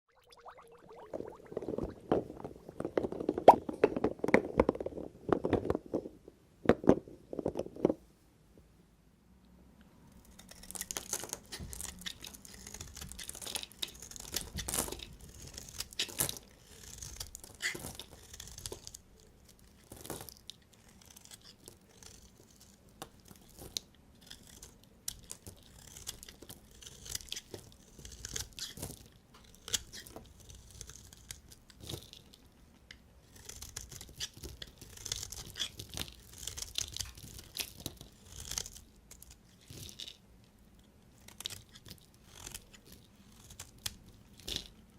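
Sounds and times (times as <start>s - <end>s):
knife cutting through soap: 10.3s - 32.1s, 33.2s - 40.0s.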